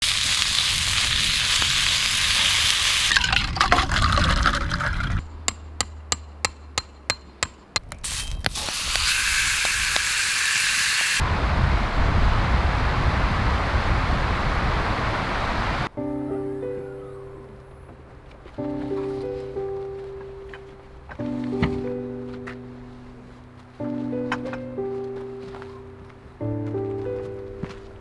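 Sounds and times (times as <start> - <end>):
steak sizzling over campfire: 0.0 - 3.3, 8.0 - 11.2.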